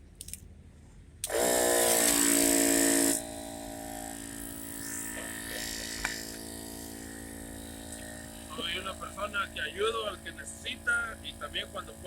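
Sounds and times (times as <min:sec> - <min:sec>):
air compressor motor hum: 0:01.0 - 0:12.0
loud air hiss: 0:04.2 - 0:11.2.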